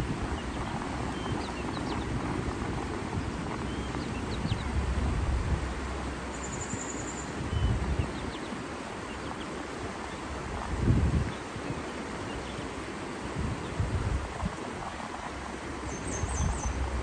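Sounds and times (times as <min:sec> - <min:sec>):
steady rumbling noise: 0:00.0 - 0:17.0
wind on microphone: 0:00.0 - 0:17.0
faint bird chirps: 0:06.3 - 0:08.5.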